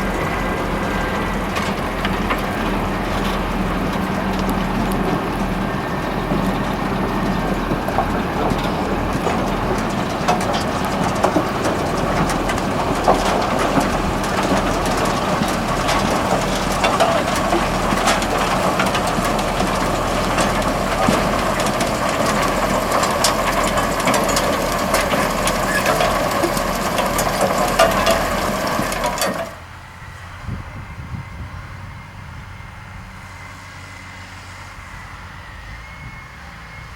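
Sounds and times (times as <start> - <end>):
tractor running: 0.0 - 36.9
potatoes and stones clattering: 0.1 - 29.6.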